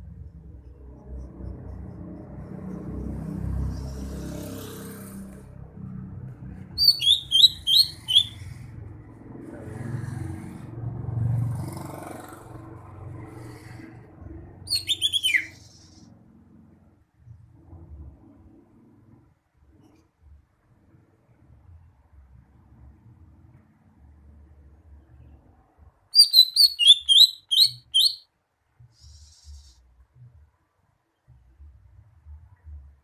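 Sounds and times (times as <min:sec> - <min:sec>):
low steady rumble: 0:00.0 - 0:04.0
bird singing high chirps: 0:06.7 - 0:08.5, 0:14.7 - 0:16.0, 0:26.2 - 0:28.3.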